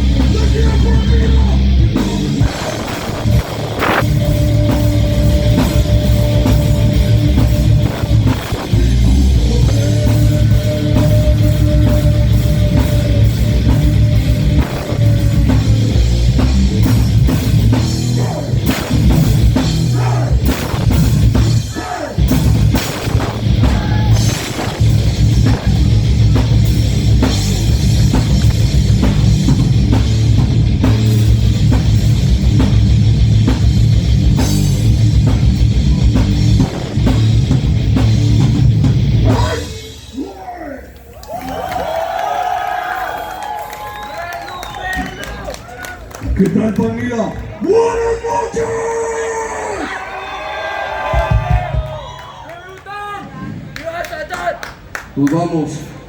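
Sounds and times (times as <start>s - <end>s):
heavy metal band playing live: 0.0s - 40.3s.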